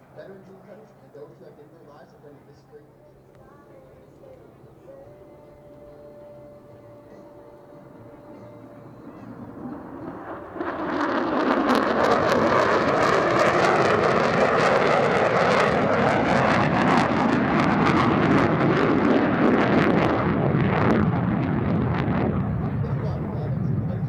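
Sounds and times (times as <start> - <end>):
loud jet engine roar: 5.6 - 24.0.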